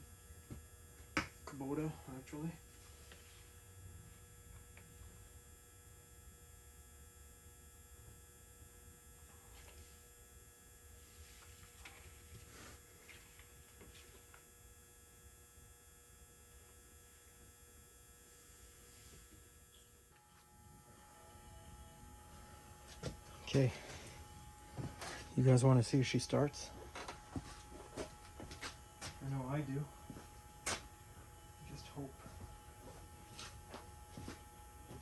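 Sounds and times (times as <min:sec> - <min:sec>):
low steady hum: 0:00.0 - 0:35.0.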